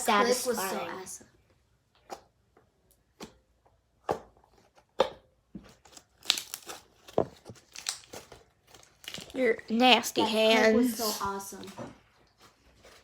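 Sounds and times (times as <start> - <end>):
slime squished by hand: 6.0 - 7.0.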